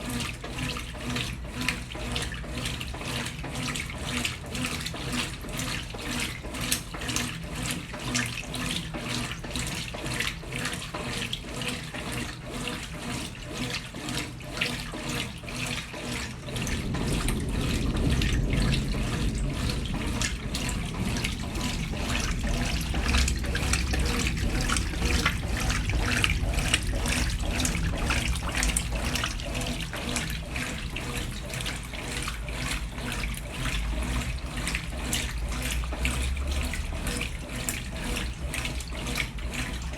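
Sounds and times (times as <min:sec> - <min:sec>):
washing machine running: 0:00.0 - 0:39.9
water rushing into tub: 0:00.0 - 0:39.9
low rumble: 0:16.3 - 0:30.0.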